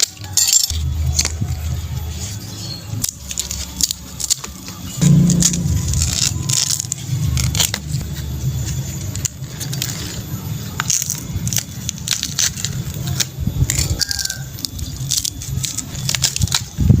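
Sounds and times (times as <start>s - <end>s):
leaf stalk cracking and snapping: 3.0s - 8.3s, 9.1s - 17.0s
low murmur: 4.8s - 17.0s.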